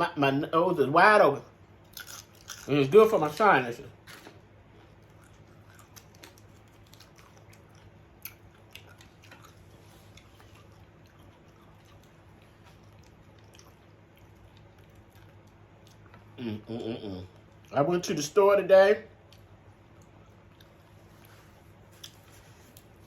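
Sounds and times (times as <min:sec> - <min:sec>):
low room hum: 0:00.0 - 0:23.0
faint chewing: 0:04.0 - 0:17.8, 0:19.2 - 0:23.0.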